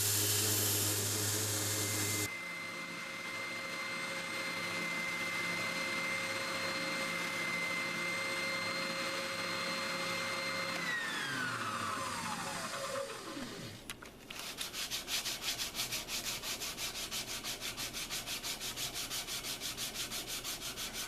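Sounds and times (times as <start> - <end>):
power tool whining: 0.0 - 14.0.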